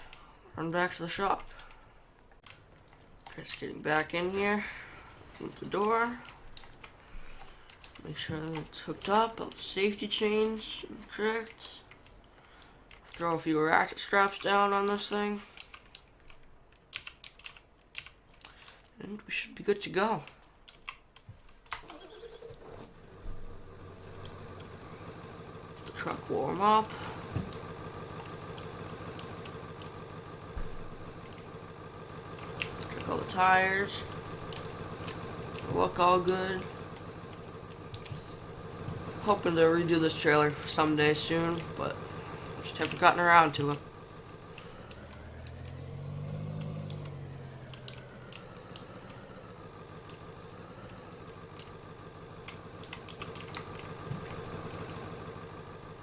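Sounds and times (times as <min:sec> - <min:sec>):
truck engine idling: 0:00.0 - 0:15.6, 0:21.9 - 0:56.0
light clicks and ticks: 0:01.2 - 0:04.4, 0:05.1 - 0:19.0, 0:19.8 - 0:21.9, 0:23.7 - 0:56.0.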